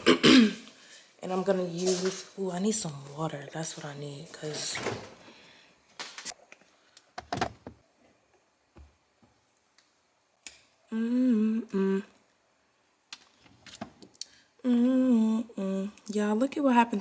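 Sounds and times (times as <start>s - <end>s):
woman humming: 10.9s - 12.2s, 14.6s - 16.0s.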